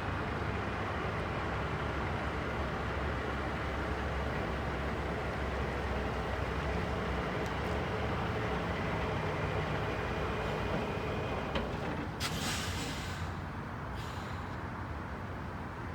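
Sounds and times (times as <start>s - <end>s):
short hiss: 12.2s - 13.4s, 14.0s - 14.6s.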